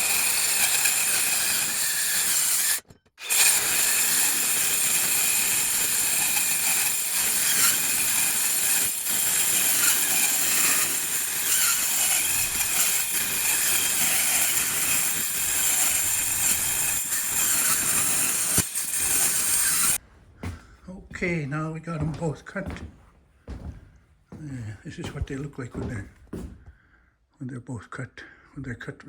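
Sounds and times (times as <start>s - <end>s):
power tool cutting metal: 0.0s - 20.0s.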